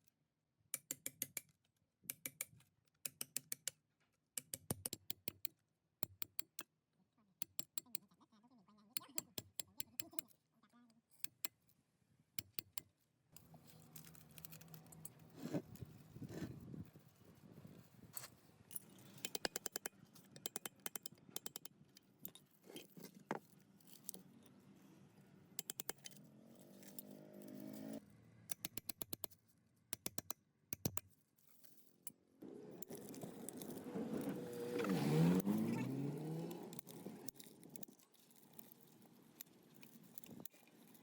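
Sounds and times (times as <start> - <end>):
small metal parts clinking: 13.4 - 15.9, 18.7 - 24.6.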